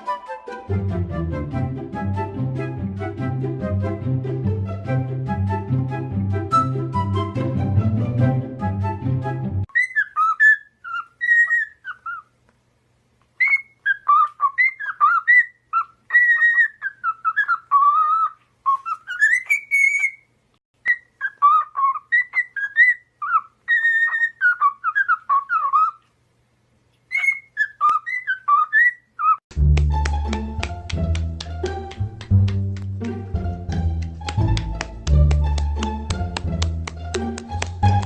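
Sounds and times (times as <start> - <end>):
bird whistling: 9.7 - 12.2, 13.4 - 20.2, 27.1 - 29.4.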